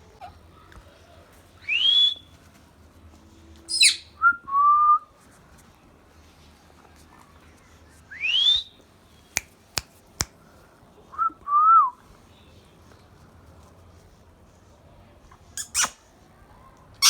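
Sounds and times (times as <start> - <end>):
parrot whistling: 3.7 - 4.1, 15.6 - 16.0.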